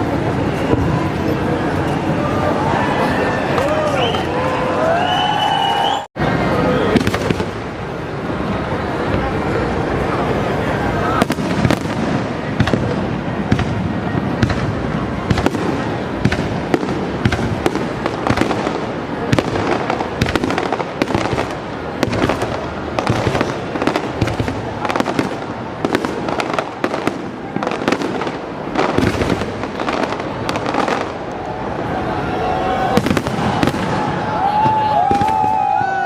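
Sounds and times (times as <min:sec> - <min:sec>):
fireworks banging: 0:00.0 - 0:36.0.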